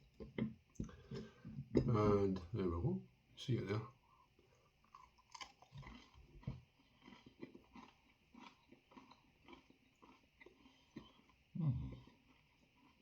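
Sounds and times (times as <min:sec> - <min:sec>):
soft chewing thumps: 0:00.2 - 0:02.5, 0:04.9 - 0:13.0
chewing with small clicks: 0:04.3 - 0:13.0.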